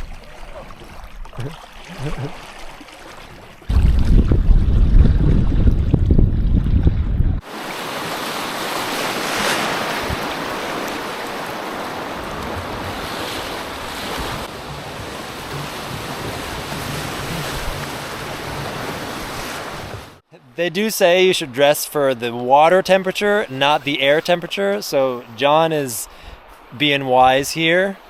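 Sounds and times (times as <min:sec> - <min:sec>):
wind buffeting microphone: 0:03.3 - 0:07.4, 0:12.0 - 0:20.2
river water rushing: 0:07.4 - 0:20.2.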